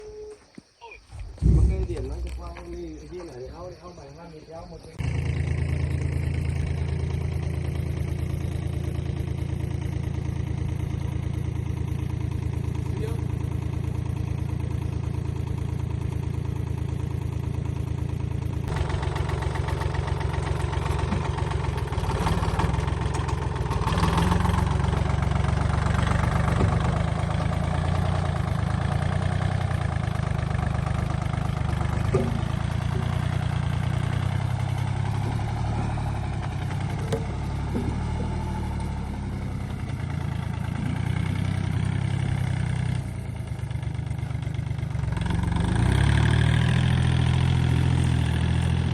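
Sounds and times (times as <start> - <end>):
machine motor humming: 1.0 - 3.7
short knocks: 1.1 - 3.4, 32.0 - 38.4.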